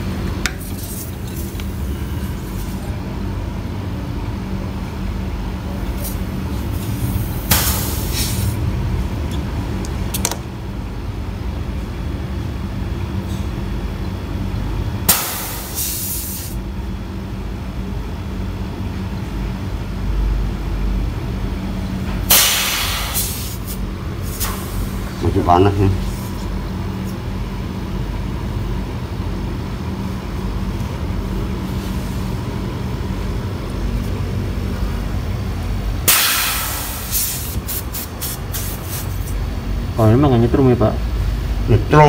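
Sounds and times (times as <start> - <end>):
refrigerator compressor humming: 0.0 - 42.0
gas hissing from pipes: 5.8 - 8.6, 15.1 - 16.6, 22.2 - 26.4, 35.9 - 39.6.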